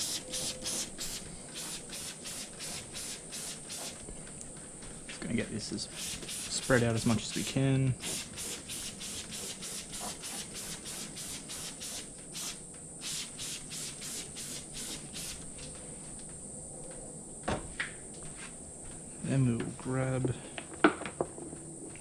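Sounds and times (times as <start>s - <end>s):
spray bottle squirts: 0.0s - 4.0s, 5.9s - 6.8s, 8.0s - 15.4s.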